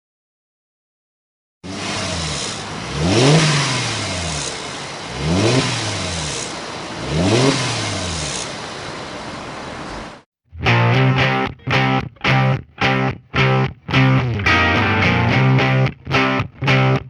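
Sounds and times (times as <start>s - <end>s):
car engine revving: 1.7s - 10.2s.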